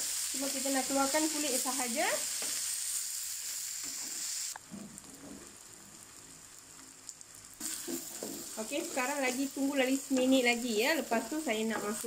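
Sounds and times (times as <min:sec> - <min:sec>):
shallots and garlic sizzling in oil: 0:00.0 - 0:12.0
wooden spatula stirring in a wok: 0:07.6 - 0:10.5.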